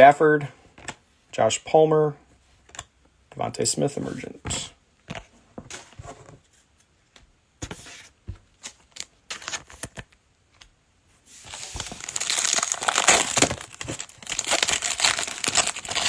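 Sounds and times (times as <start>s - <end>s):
wrapper crinkling and tearing: 11.5s - 16.0s.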